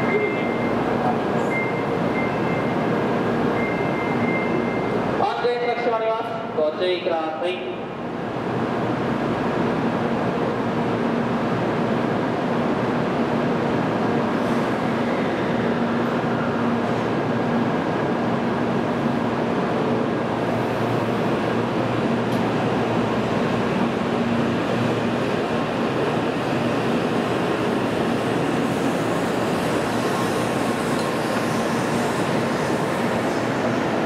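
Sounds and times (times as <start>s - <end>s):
high-speed train running: 0.0s - 34.0s.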